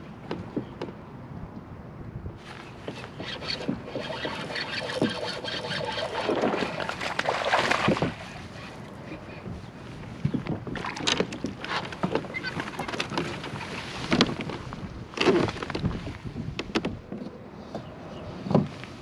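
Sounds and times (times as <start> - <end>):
handling knocks and rustles: 10.2 - 19.0.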